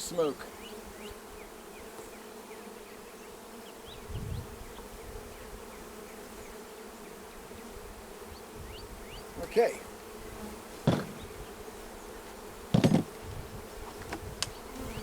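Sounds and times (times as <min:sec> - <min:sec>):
honeybees buzzing: 0:00.0 - 0:15.0
low thump: 0:10.9 - 0:11.4, 0:12.8 - 0:13.2.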